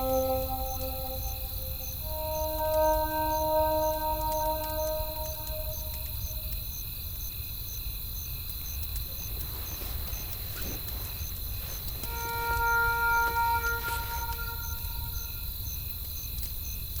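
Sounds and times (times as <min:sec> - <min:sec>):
held musical chord: 0:00.0 - 0:06.4, 0:12.1 - 0:15.4
insect chirps: 0:00.0 - 0:17.0.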